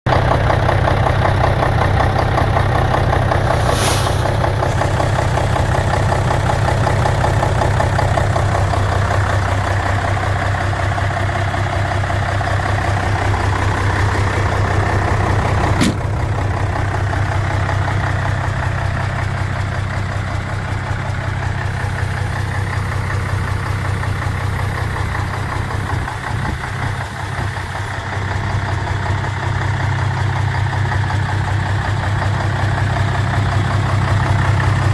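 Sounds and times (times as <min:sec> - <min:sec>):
truck diesel engine idling: 0:00.1 - 0:34.9
short hiss: 0:03.4 - 0:05.2, 0:15.8 - 0:16.1
sharp click: 0:15.8 - 0:16.1.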